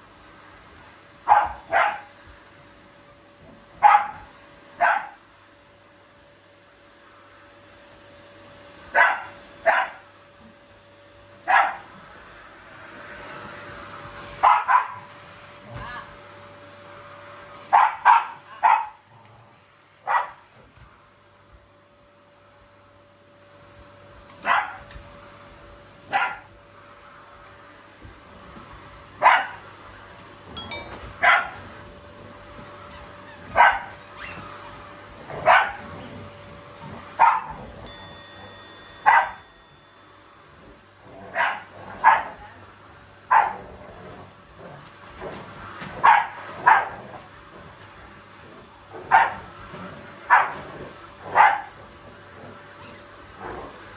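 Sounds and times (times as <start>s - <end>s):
vacuum cleaner hum: 0.0s - 53.9s
dog barking: 1.2s - 2.1s, 3.8s - 5.2s, 8.9s - 10.0s, 11.5s - 11.9s, 14.4s - 15.1s, 17.7s - 19.0s, 20.0s - 20.4s, 24.4s - 24.9s, 26.1s - 26.5s, 29.2s - 29.6s, 31.2s - 31.7s, 33.5s - 34.3s, 35.3s - 36.0s, 37.2s - 37.7s, 39.0s - 39.5s, 41.3s - 42.6s, 43.3s - 43.7s, 46.0s - 47.0s, 49.0s - 49.5s, 50.3s - 50.6s, 51.3s - 51.8s.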